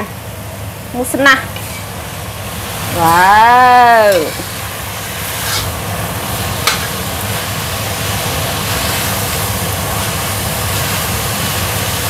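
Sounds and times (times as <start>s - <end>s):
food sizzling in a wok: 0.0s - 12.0s
kitchen extractor hood humming: 0.0s - 12.0s
metal spatula scraping pan: 5.2s - 5.8s.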